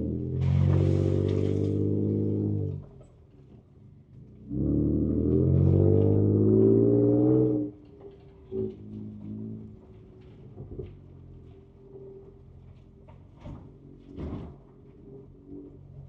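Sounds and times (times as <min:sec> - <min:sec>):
truck engine revving: 0:00.0 - 0:02.9, 0:04.5 - 0:07.8.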